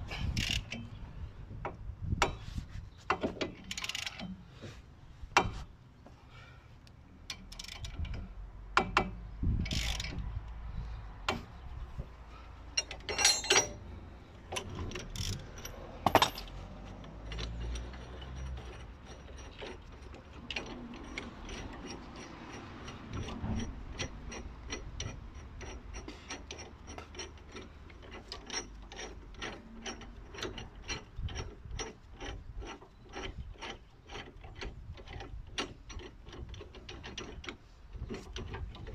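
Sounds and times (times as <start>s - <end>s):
ratchet wrench clicking: 0.4s - 0.8s, 7.3s - 7.9s, 9.7s - 10.2s
metal tools knocking: 12.8s - 13.8s, 15.3s - 19.8s.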